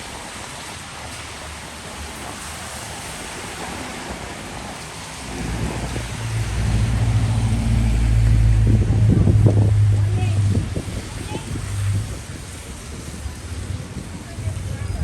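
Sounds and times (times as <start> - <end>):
rain hissing: 0.0 - 15.0
wet street noise: 0.0 - 15.0
heavy vehicle engine humming: 4.7 - 15.0.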